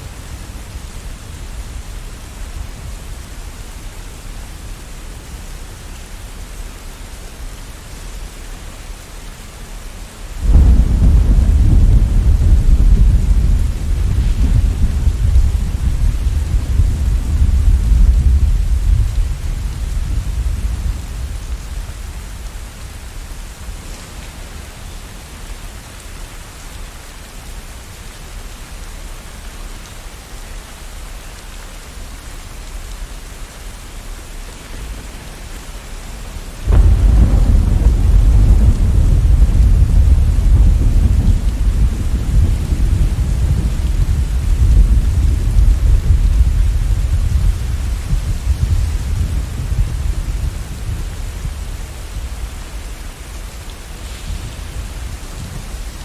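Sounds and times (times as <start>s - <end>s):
rain falling: 0.0s - 56.0s
thunder rumbling: 10.4s - 24.9s, 34.6s - 56.0s.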